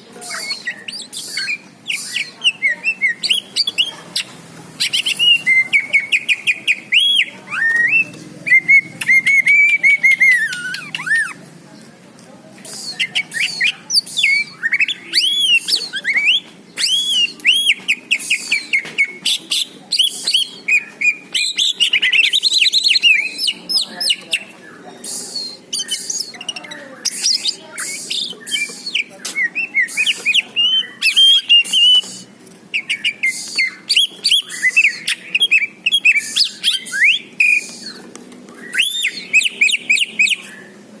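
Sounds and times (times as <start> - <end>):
bird singing chirps and whistles: 0.2 - 3.9, 4.8 - 11.4, 12.6 - 40.7.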